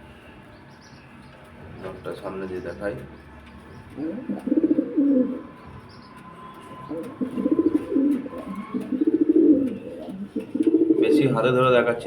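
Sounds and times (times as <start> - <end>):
pigeon cooing: 4.0 - 5.8, 6.8 - 11.8.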